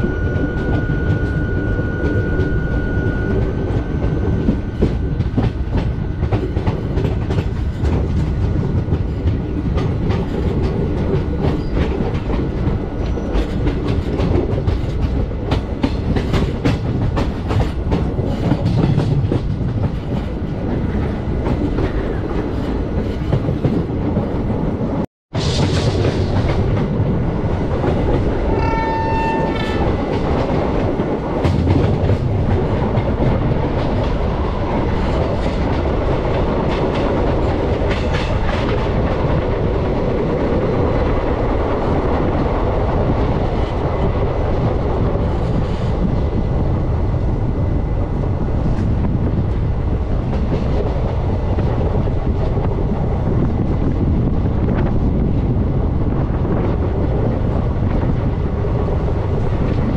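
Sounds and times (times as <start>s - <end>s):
train rumbling and clattering on rails: 0.0s - 59.9s
locomotive horn: 28.4s - 30.1s.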